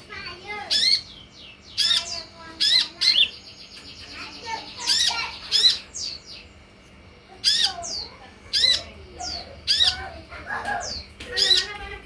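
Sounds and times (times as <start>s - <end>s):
sunbird calling: 0.5s - 6.6s, 7.4s - 10.2s.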